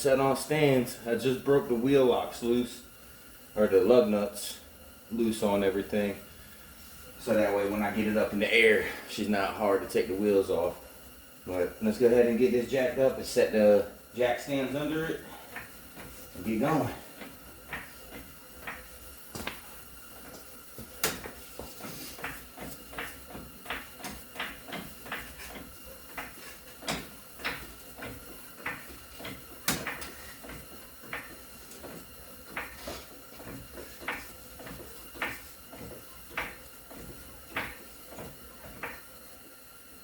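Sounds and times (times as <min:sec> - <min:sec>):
floor jack clacking: 0:15.5 - 0:39.1.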